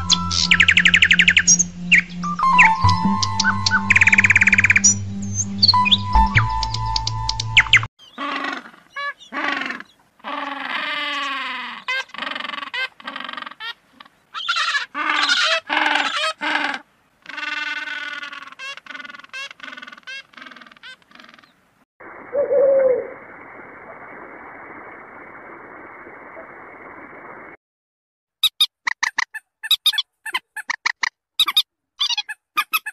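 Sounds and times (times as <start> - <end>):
birds calling: 0.0 - 21.6.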